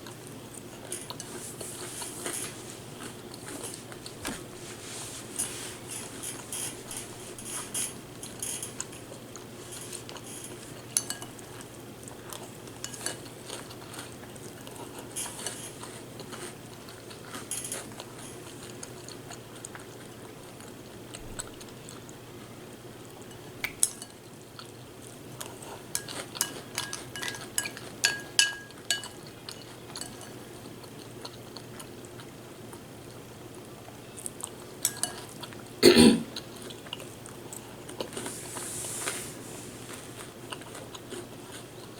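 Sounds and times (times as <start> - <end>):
spoon clinking in a bowl: 9.8 - 11.4, 26.0 - 30.3, 34.8 - 35.3.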